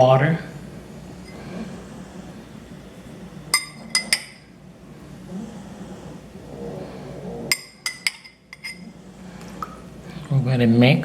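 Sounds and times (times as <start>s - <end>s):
spoon clinking against bowl: 3.5s - 4.4s, 7.5s - 8.8s.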